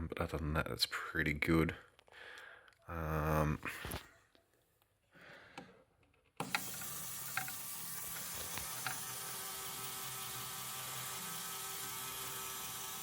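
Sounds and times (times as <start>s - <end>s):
plastic gear train running: 6.4s - 13.0s.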